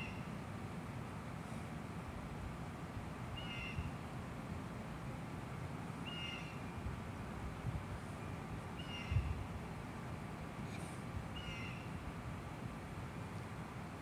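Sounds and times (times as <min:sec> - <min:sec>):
bird calling: 0:03.4 - 0:03.9, 0:06.0 - 0:06.6, 0:08.8 - 0:09.3, 0:11.4 - 0:12.0.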